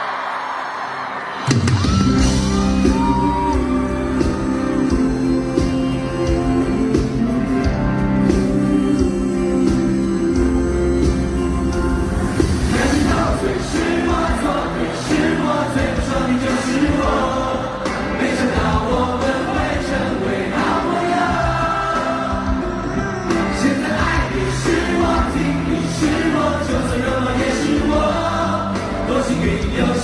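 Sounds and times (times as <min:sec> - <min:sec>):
crowd singing together: 0:00.0 - 0:01.6, 0:02.2 - 0:30.0
live band music: 0:01.4 - 0:30.0.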